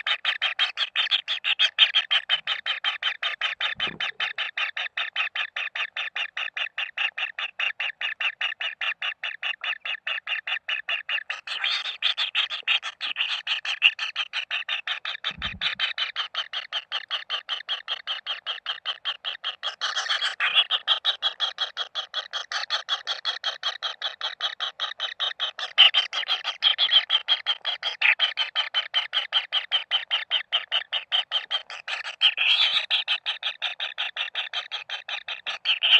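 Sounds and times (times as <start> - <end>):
low thump: 3.8 - 4.1.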